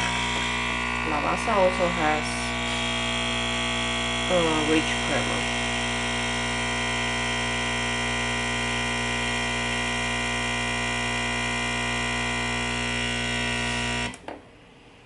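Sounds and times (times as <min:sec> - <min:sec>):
coffee machine pump buzzing: 0:00.0 - 0:14.2.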